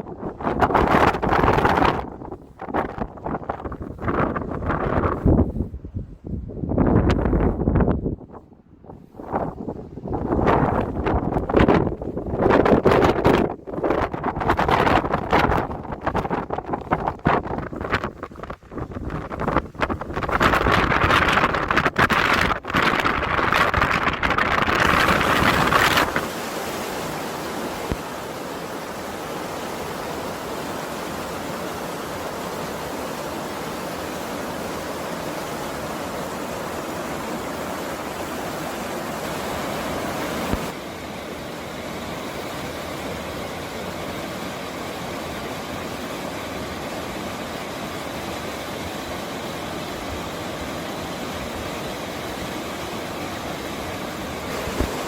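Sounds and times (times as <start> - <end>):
wind gusting against microphone: 0.0 - 40.8, 53.6 - 55.0.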